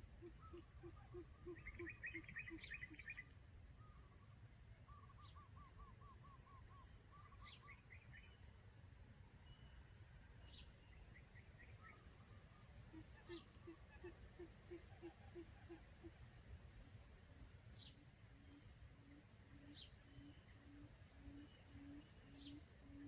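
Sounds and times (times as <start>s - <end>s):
quail calls: 0.2s - 3.2s, 11.9s - 16.2s, 17.8s - 23.0s.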